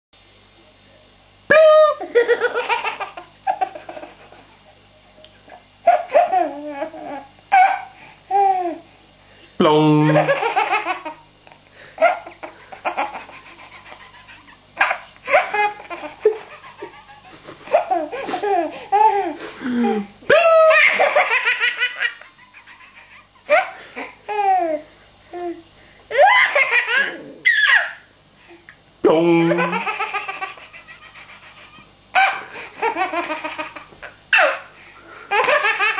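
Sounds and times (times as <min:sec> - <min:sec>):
baby laughing: 0:01.5 - 0:04.6, 0:05.8 - 0:08.8, 0:10.1 - 0:11.2, 0:12.0 - 0:24.8, 0:26.1 - 0:28.0, 0:29.5 - 0:34.7, 0:35.3 - 0:35.9.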